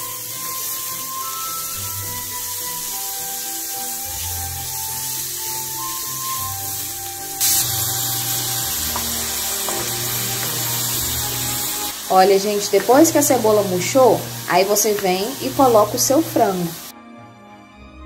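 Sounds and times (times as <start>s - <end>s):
onion sizzling in oil: 0.0s - 16.9s
background music: 0.0s - 18.0s
spatula scraping a pan: 8.2s - 11.4s.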